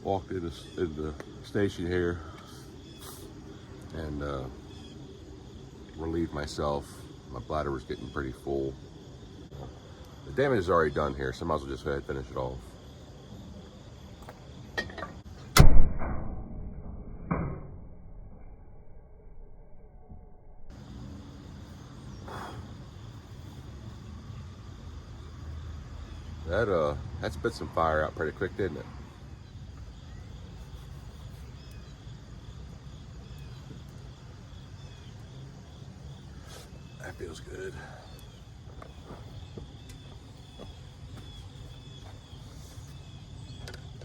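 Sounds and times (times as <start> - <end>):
faint bird chirps: 0.1 - 11.4, 21.6 - 27.0, 27.7 - 44.0
loud sudden thud: 15.6 - 17.8.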